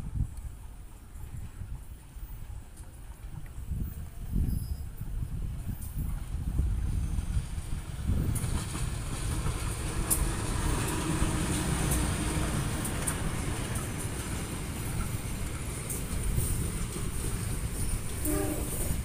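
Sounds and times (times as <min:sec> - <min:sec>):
diesel locomotive rumbling past: 0:05.4 - 0:19.0
train wheel clicks: 0:08.2 - 0:19.0.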